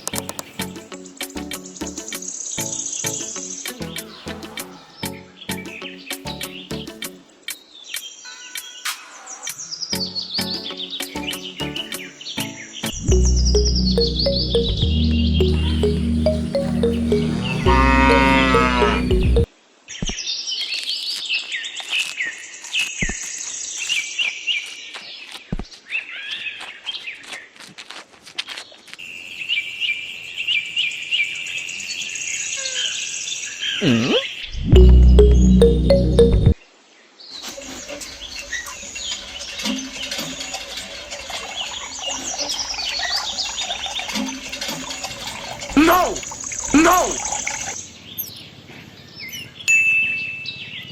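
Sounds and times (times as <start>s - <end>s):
small birds chirping: 0.0s - 16.0s, 41.6s - 49.7s.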